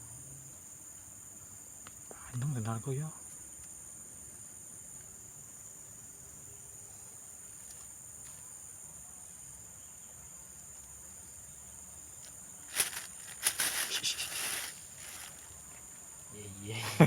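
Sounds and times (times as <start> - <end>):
insects shrilling: 11.4 - 17.0
close rustling and clicking: 12.2 - 15.5.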